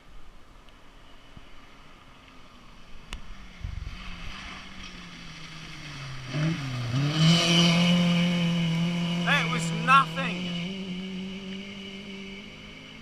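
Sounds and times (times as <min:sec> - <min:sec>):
rally car engine approaching: 0:01.0 - 0:13.0.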